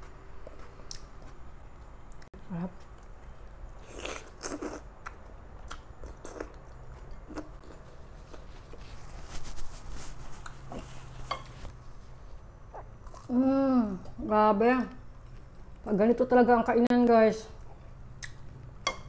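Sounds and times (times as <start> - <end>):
person chewing food: 0.0 - 9.0, 12.7 - 13.3.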